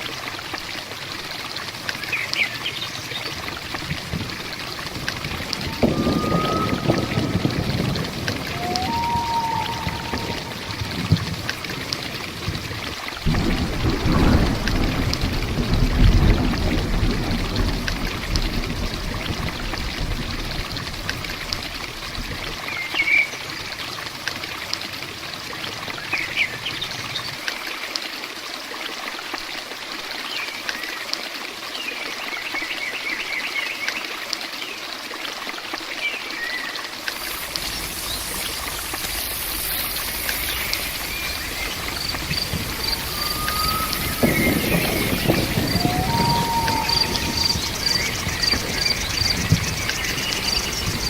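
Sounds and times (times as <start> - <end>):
rain and running water: 0.0 - 51.0
bird chirps: 37.2 - 51.0.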